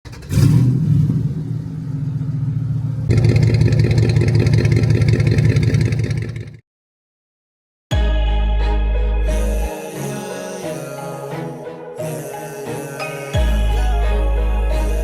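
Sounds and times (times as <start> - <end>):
car engine with deep exhaust: 0.1 - 6.6.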